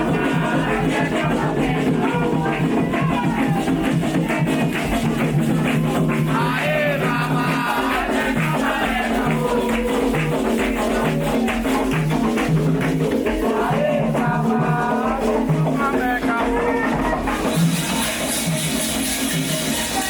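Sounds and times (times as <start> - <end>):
percussion: 0.0 - 20.0
voices singing: 0.0 - 20.0
shaker rattle: 17.3 - 20.0.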